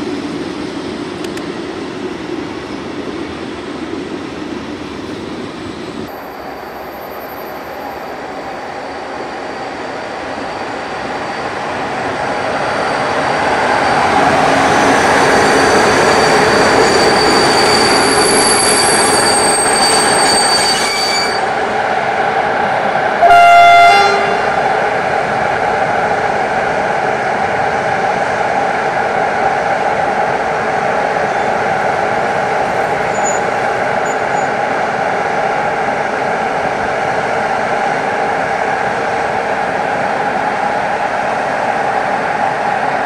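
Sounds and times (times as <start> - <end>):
electric locomotive rumble: 0.0 - 43.0
high squeal: 6.1 - 21.7, 32.9 - 34.6
train horn blast: 23.2 - 24.5.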